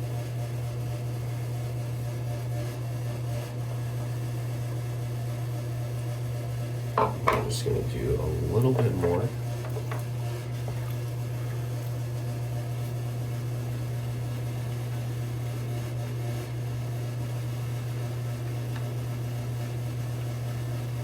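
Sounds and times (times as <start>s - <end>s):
steady low hum: 7.0s - 14.0s.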